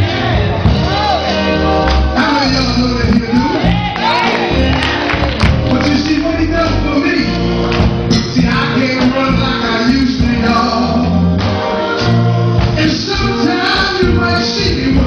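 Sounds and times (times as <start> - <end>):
drum beat: 0.0 - 10.8
bass line: 0.0 - 15.0
gospel group singing: 0.0 - 15.0.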